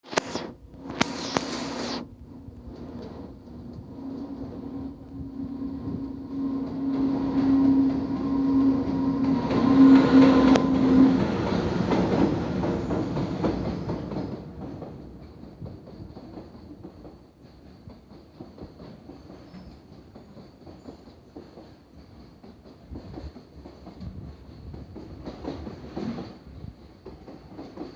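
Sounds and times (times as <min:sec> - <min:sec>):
freight train passing: 0:00.2 - 0:27.9
locomotive hum: 0:00.3 - 0:16.9.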